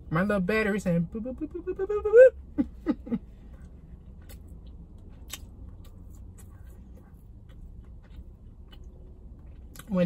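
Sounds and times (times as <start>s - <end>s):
steady low hum: 0.0s - 10.0s
quiet chewing: 3.4s - 9.9s.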